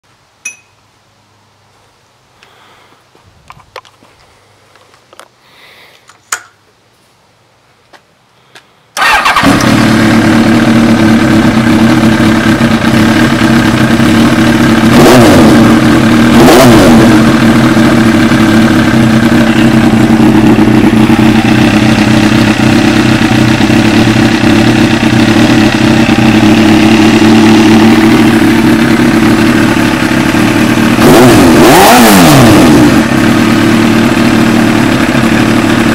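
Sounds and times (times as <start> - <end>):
motorcycle engine starting and idling: 8.9 - 35.9
motorcycle throttle blips: 9.0 - 34.4.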